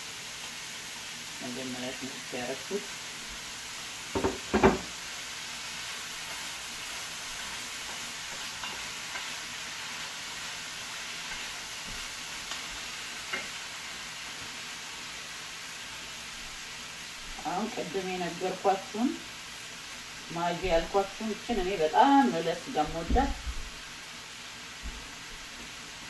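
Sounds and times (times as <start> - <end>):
food sizzling in a frying pan: 0.0 - 26.0
wooden spatula knocking pan: 4.1 - 4.9.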